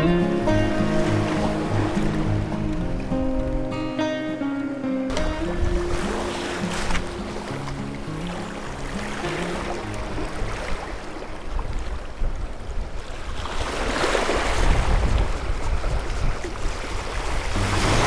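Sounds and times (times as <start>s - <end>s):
waves washing on shore: 0.0s - 18.0s
wind buffeting microphone: 5.1s - 18.0s.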